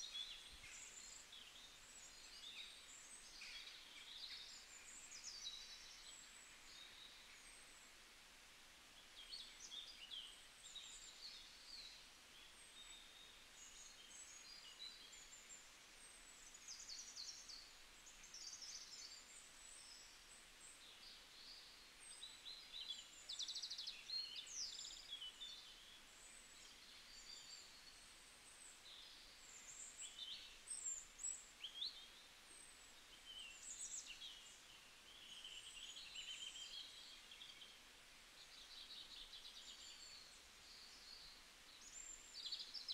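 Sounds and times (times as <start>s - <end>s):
small birds chirping: 0.0s - 8.0s, 9.0s - 42.9s.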